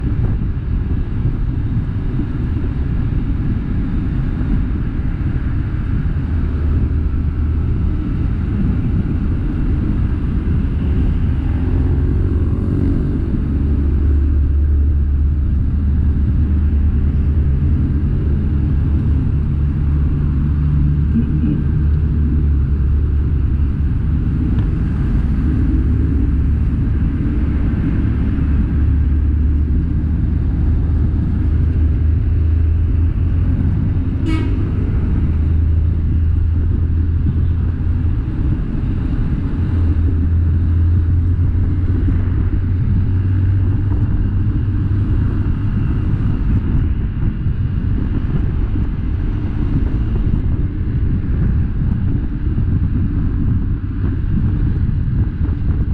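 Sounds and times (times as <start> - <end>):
road noise: 0.0 - 55.9
truck engine running: 0.0 - 55.9.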